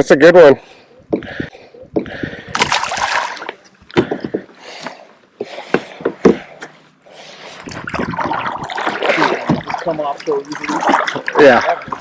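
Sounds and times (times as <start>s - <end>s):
water splashing: 2.5s - 3.6s, 7.4s - 12.0s.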